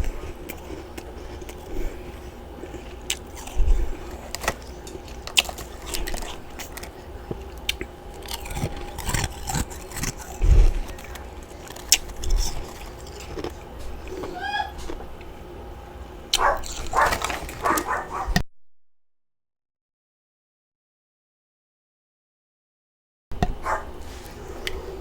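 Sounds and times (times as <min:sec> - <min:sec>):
person chewing frost crunchily: 0:00.0 - 0:15.4, 0:16.3 - 0:18.4.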